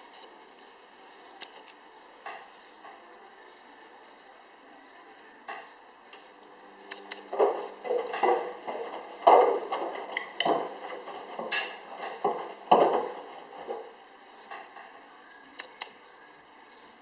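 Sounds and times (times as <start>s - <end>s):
cat knocking on washing machine: 7.3s - 13.8s
heavier thumps: 7.3s - 13.9s.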